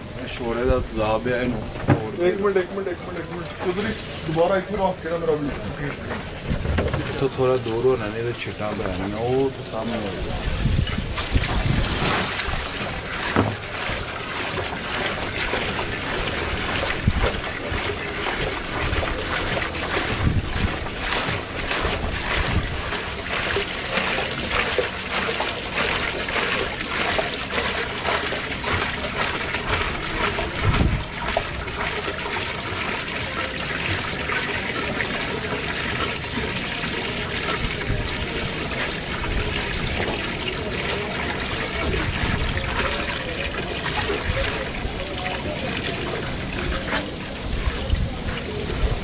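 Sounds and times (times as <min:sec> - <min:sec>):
acid fizzing on metal: 0:00.0 - 0:49.0
dull knock: 0:01.5 - 0:02.2, 0:06.5 - 0:07.2, 0:13.3 - 0:13.6.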